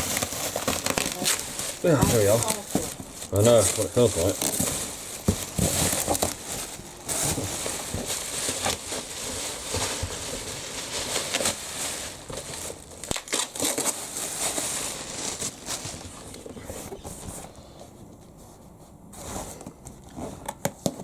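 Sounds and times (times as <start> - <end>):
plastic bag crinkling: 0.0 - 17.5.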